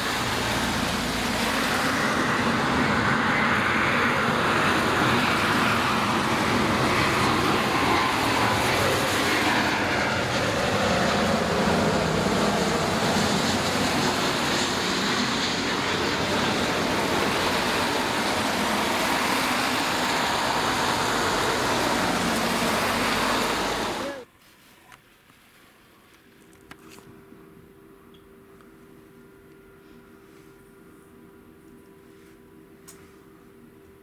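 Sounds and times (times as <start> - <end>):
jet airliner passing: 0.0 - 24.3.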